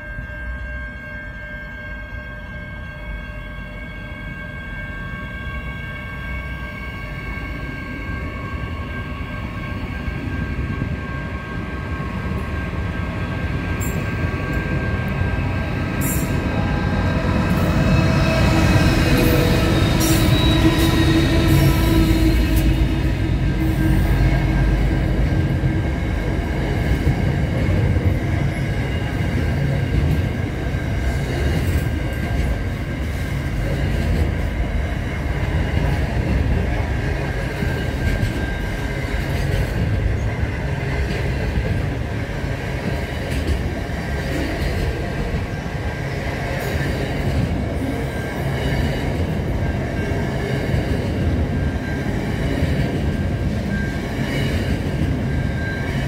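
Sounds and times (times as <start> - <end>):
freight train passing: 0.0 - 56.0
wheels rattling on rails: 9.3 - 56.0.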